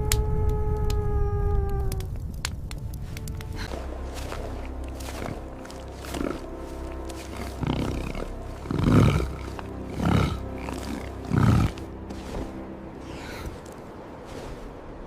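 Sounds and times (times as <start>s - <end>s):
background music: 2.3s - 15.0s
tiger growling: 4.6s - 13.8s.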